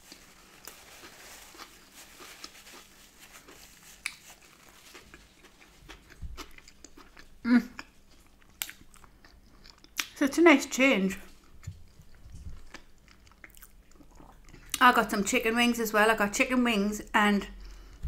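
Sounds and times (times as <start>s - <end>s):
person chewing wetly: 0.1s - 10.2s, 11.2s - 14.8s.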